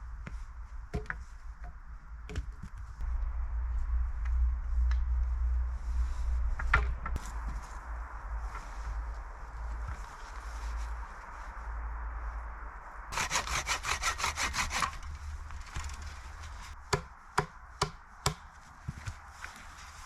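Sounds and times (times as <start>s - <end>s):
saw cutting wood: 13.1s - 16.8s
sharp wooden knocks: 16.9s - 18.4s.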